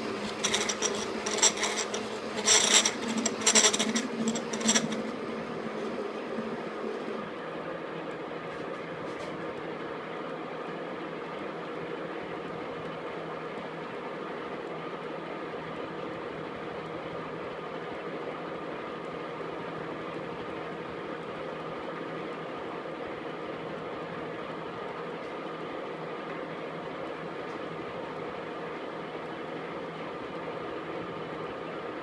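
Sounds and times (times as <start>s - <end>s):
metal lathe humming and whirring: 0.0s - 7.2s.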